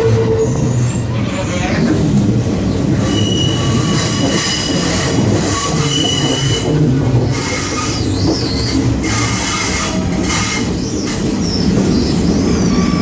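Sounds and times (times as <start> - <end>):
train rumbling on rails: 0.0 - 13.0
metallic wheel squeal: 2.9 - 13.0.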